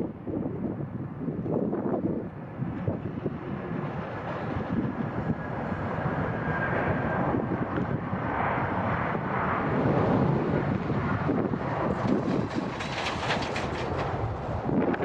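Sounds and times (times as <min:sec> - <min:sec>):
jet engines rushing: 0:00.1 - 0:15.0.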